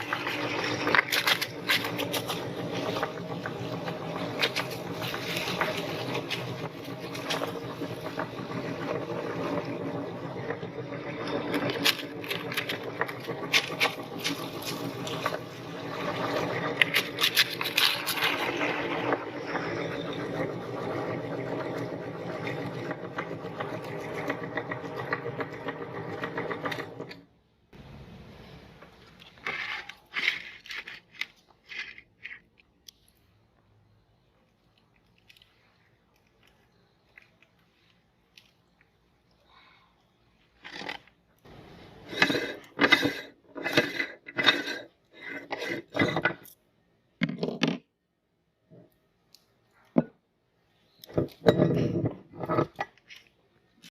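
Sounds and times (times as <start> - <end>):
crackling and crunching: 0.0 - 9.8, 11.2 - 19.7, 29.0 - 33.4, 34.4 - 39.3.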